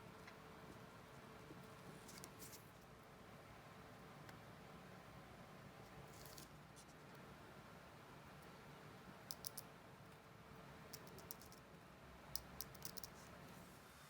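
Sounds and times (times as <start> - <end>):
faint steady hum: 0.0 - 14.0
small sharp clicks: 9.3 - 9.7, 12.3 - 13.2.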